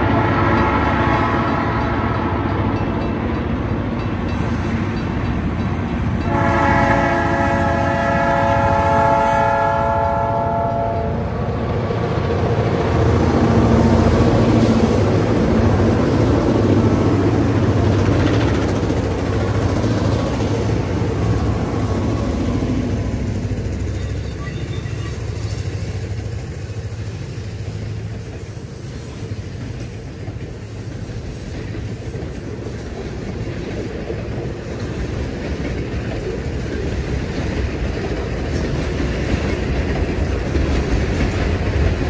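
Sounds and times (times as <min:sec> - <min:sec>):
train horn blasts: 0:00.0 - 0:02.7, 0:06.2 - 0:11.3
diesel locomotive engines: 0:00.0 - 0:42.0
wheels rumbling on rails: 0:00.0 - 0:42.0.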